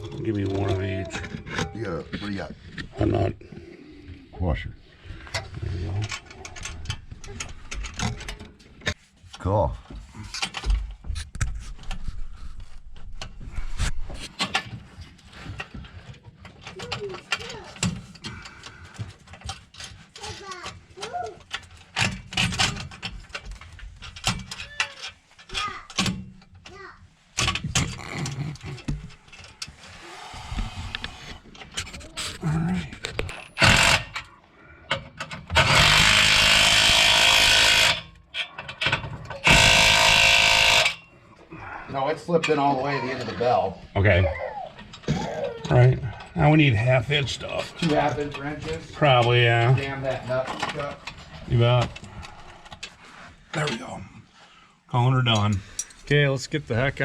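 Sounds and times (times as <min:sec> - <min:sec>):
hand tools clicking and clanking: 0:05.2 - 0:09.0, 0:13.1 - 0:41.5, 0:44.8 - 0:53.8, 0:55.3 - 0:56.2
cordless power tool running: 0:29.9 - 0:31.5, 0:33.6 - 0:34.1, 0:35.6 - 0:38.0, 0:39.4 - 0:41.0.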